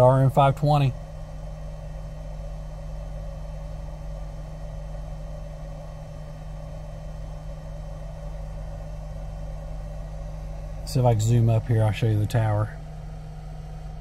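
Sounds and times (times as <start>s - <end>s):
car engine idling: 8.0s - 14.0s.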